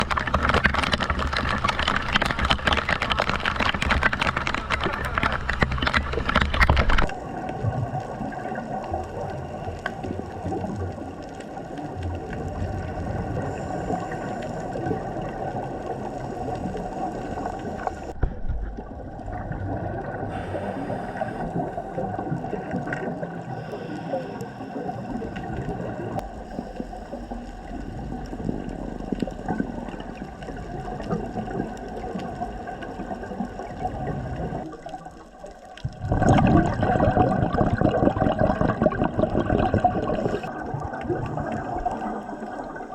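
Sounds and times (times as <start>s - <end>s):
underwater watery hiss: 12.5s - 18.2s, 20.0s - 34.7s
low rumble: 23.6s - 34.6s.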